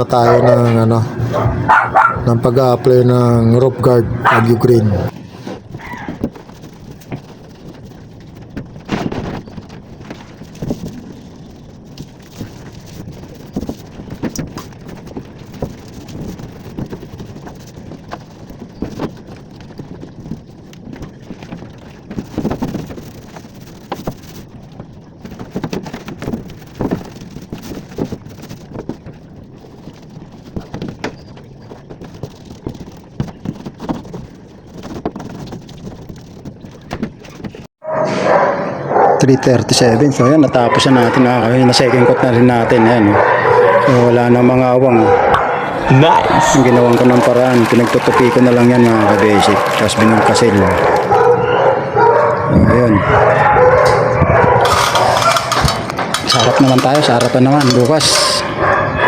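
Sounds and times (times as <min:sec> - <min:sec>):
brush scraping metal roof: 0:00.0 - 0:11.4.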